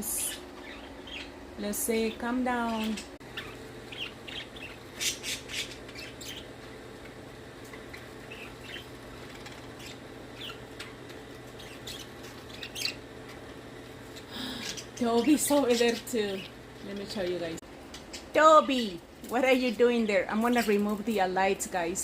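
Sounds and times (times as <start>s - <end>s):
budgerigars chirping and squawking: 0.1s - 1.4s, 2.0s - 6.5s, 7.8s - 13.4s.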